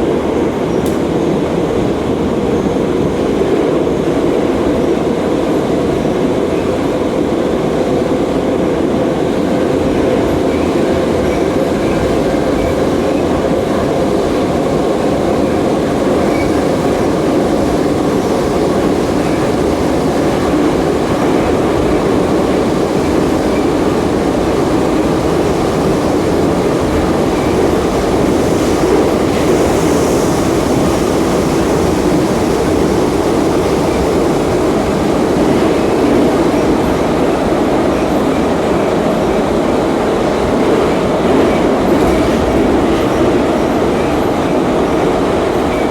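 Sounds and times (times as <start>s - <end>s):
metro car wheels rumbling: 0.0s - 45.9s.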